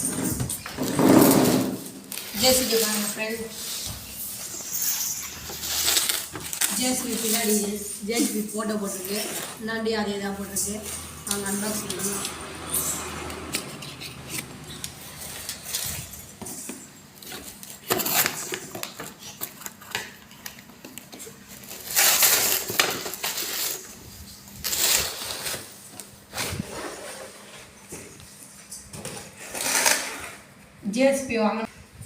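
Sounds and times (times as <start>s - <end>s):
packaging rustling and scraping: 0.0s - 28.2s, 29.0s - 30.5s
packaging clicks and clatter: 17.2s - 23.8s.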